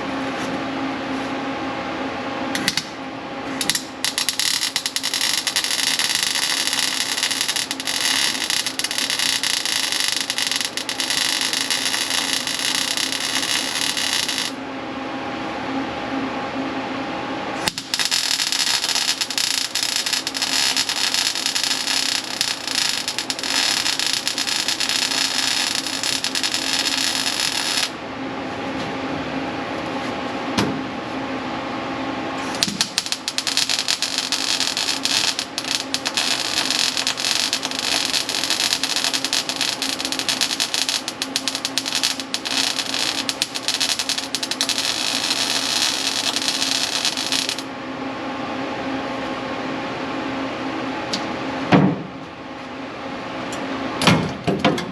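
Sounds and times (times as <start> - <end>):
welding arc crackling: 3.6 - 14.6, 17.6 - 28.0, 32.4 - 47.7.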